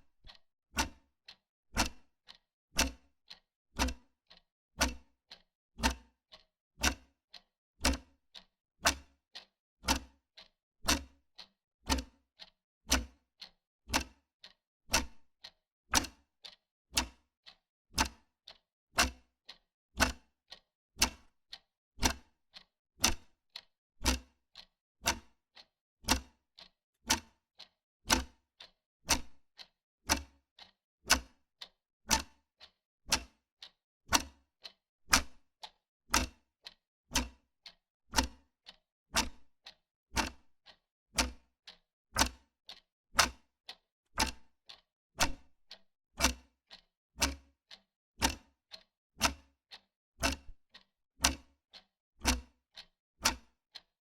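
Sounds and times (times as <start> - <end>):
wall clock ticking: 16.0 - 17.2, 30.1 - 34.4, 39.2 - 41.5, 42.2 - 43.4, 44.2 - 46.4, 47.2 - 52.4.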